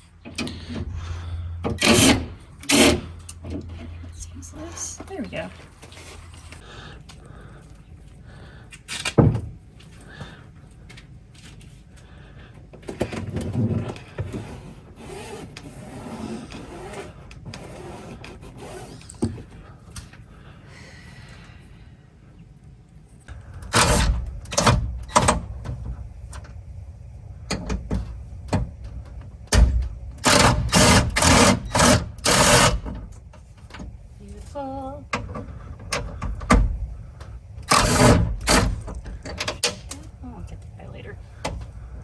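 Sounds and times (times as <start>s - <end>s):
handling and rattling in door: 0.0s - 4.2s, 8.9s - 9.7s, 23.4s - 26.6s, 27.4s - 34.0s, 35.1s - 40.0s
loud short mechanical bursts: 0.4s - 3.6s, 23.7s - 25.4s, 30.2s - 32.9s, 37.7s - 38.8s.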